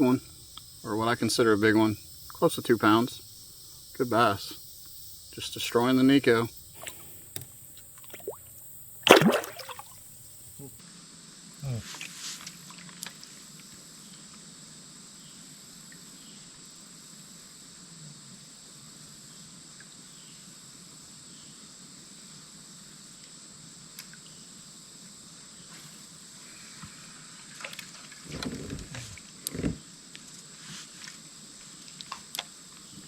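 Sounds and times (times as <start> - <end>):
high-pitched insect drone: 0.0 - 10.8
water splashes: 5.4 - 10.8.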